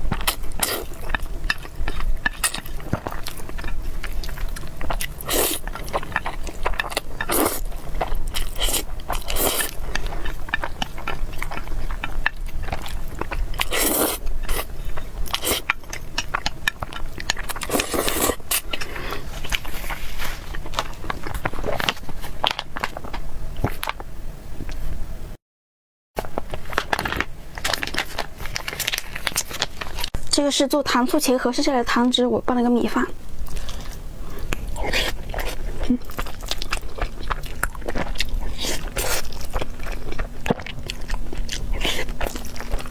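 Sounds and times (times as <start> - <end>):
chewing and biting food: 0.0 - 24.0, 26.2 - 30.2, 33.3 - 42.9
scraping sounds: 19.2 - 20.5.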